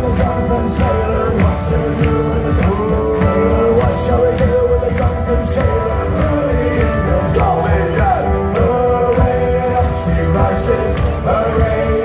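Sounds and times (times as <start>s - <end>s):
instrumental accompaniment: 0.0s - 12.0s
choir singing: 5.2s - 12.0s.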